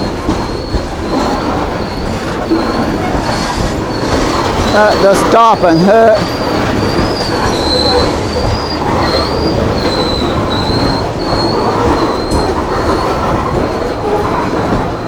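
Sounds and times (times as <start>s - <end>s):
freight train rumble: 0.0s - 15.0s
train wheels squealing: 0.0s - 15.0s.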